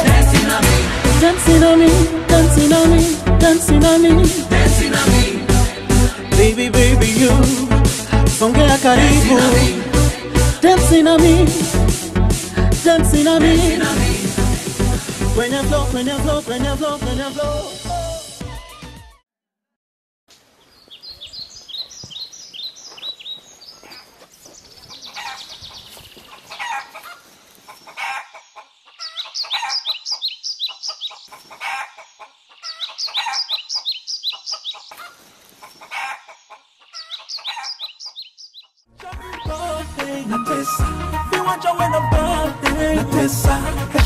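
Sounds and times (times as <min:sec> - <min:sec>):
birds chirping: 0:20.6 - 0:39.6
lower bird calls: 0:32.5 - 0:35.9, 0:36.5 - 0:38.8.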